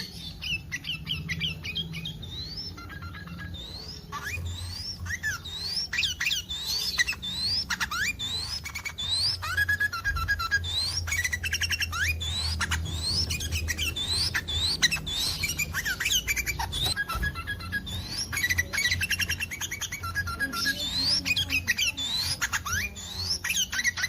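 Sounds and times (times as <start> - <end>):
bird chattering calls: 0.0 - 24.0
bird whistled notes: 0.0 - 24.0.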